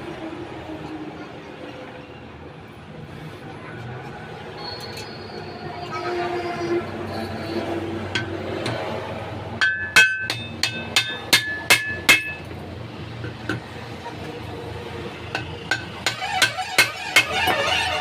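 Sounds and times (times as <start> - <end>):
hammer striking metal: 8.1 - 8.9, 9.6 - 12.5, 15.3 - 17.5.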